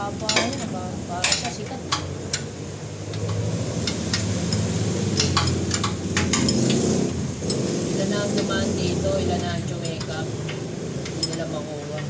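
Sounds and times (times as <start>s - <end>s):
metallic tool clicks and taps: 3.1s - 6.8s.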